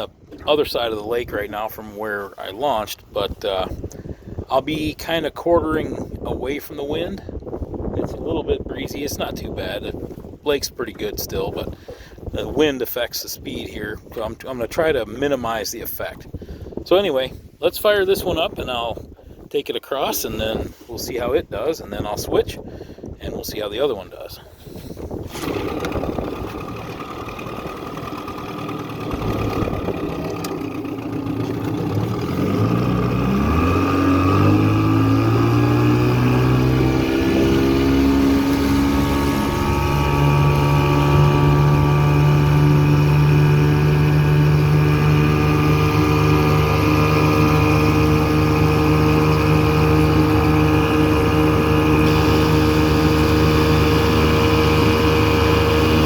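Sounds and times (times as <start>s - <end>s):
outboard motor running: 0.0s - 12.7s, 24.4s - 56.0s.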